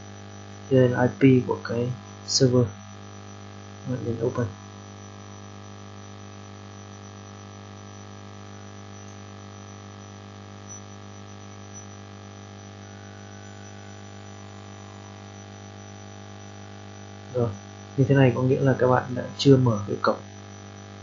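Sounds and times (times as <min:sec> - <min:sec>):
electrical mains hum: 0:00.0 - 0:21.0
faint ticks: 0:02.0 - 0:18.0.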